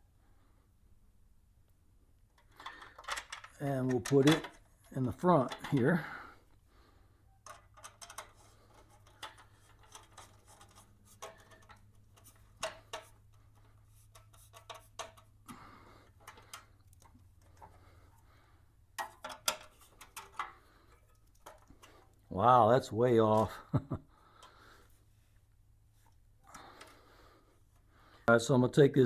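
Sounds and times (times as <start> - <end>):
bolt screwed in by hand: 2.4 - 5.9, 7.4 - 15.4, 16.1 - 17.8.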